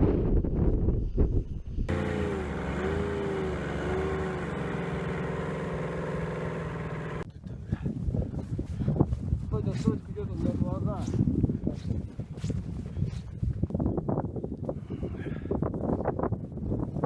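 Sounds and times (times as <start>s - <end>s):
snowmobile engine running: 1.9s - 7.2s
wind buffeting microphone: 7.2s - 17.0s.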